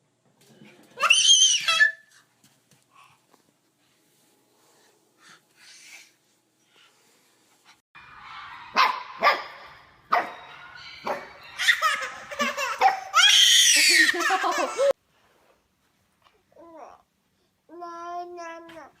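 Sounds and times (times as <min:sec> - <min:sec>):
dog barking: 0:08.5 - 0:11.8
baby laughing: 0:11.0 - 0:15.0.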